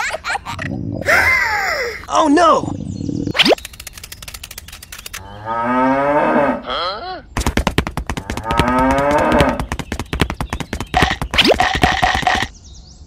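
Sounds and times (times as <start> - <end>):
rapid sharp clicks: 3.4 - 5.2.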